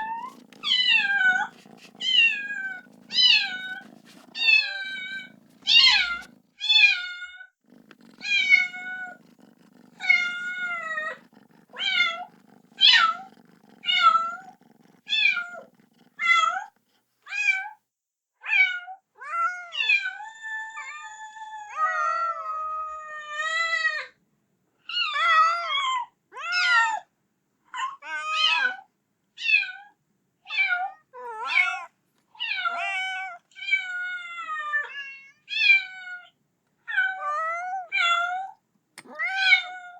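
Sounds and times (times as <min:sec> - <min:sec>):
kitten meowing: 0:00.0 - 0:07.0, 0:07.8 - 0:16.6.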